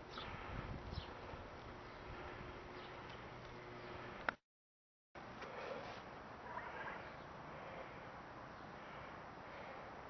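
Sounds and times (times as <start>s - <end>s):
faint wind rush: 0.1s - 2.8s.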